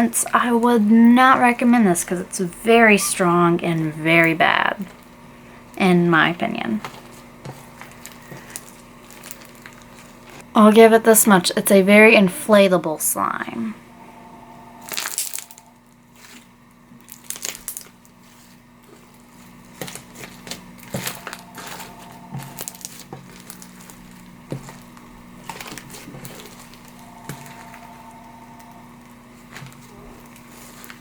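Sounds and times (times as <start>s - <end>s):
slime squished with crackles and pops: 16.2s - 18.2s.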